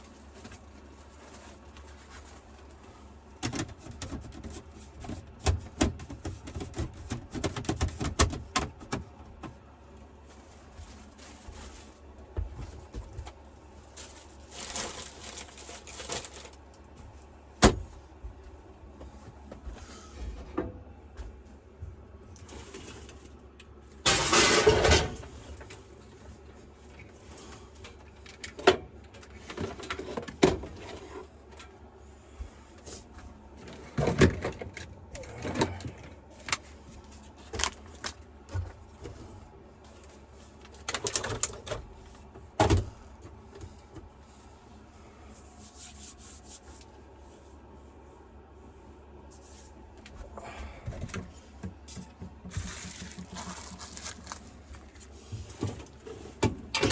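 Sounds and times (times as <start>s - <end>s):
steady low hum: 0.0s - 56.9s
rustling of gear: 52.5s - 56.0s.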